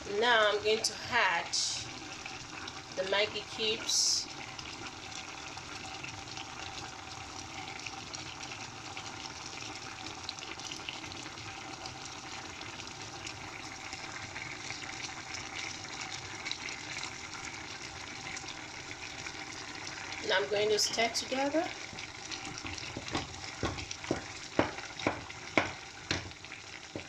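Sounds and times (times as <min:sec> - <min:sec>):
pot bubbling and crackling: 0:00.0 - 0:27.0.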